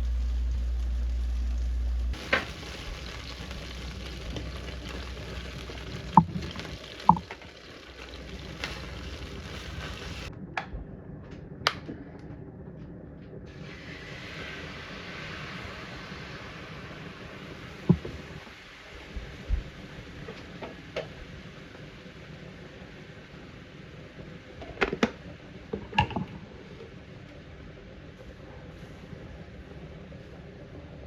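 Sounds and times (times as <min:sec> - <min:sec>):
loud low hum: 0:00.0 - 0:07.2, 0:07.9 - 0:18.4
food sizzling in a frying pan: 0:00.0 - 0:10.3, 0:13.5 - 0:27.1.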